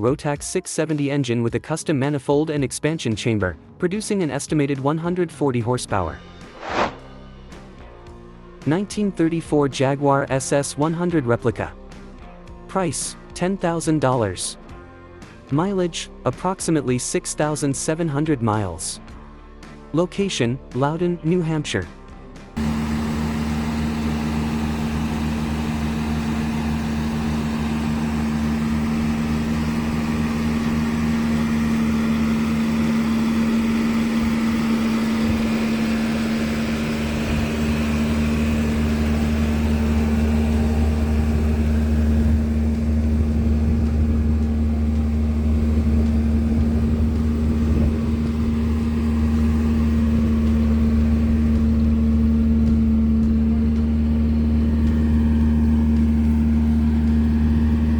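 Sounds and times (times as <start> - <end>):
car engine idling: 22.6 - 57.9.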